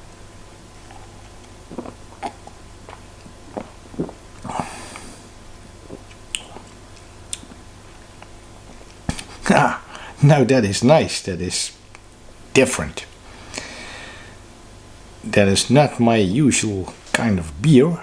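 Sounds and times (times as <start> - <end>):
slurping sip: 0.9 - 6.7
person swallowing: 1.7 - 5.1
mouth clicks and lip smacks: 5.9 - 7.6.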